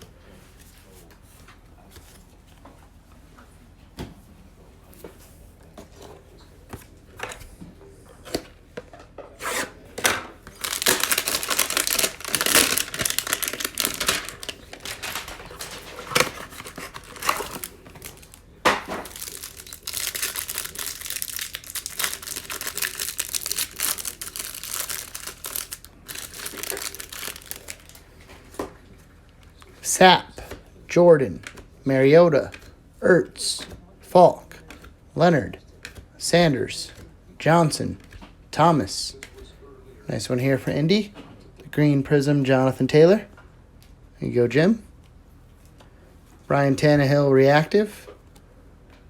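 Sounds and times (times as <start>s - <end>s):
plastic wrap crinkling: 10.4s - 28.2s
packaging tearing: 10.5s - 28.0s.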